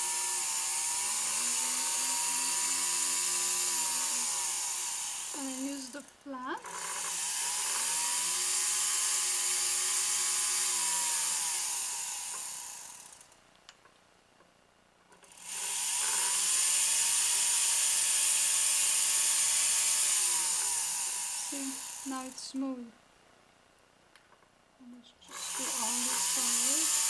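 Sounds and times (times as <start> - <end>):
polishing wheel hissing on metal: 0.0 - 6.1, 6.7 - 13.2, 15.6 - 22.5, 25.3 - 27.0
rotary tool motor whine: 0.0 - 13.4, 15.2 - 22.6, 25.2 - 27.0.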